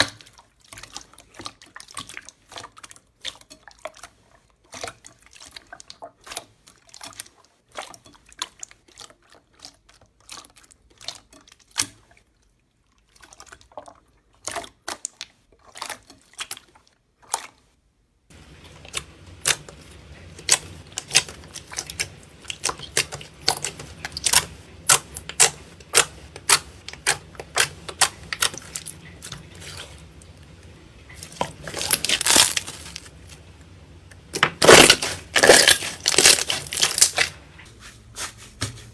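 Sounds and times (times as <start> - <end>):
slime squishing with sticky pops: 0.0 - 12.4, 13.0 - 17.6, 18.5 - 37.7
low steady hum: 18.3 - 38.9.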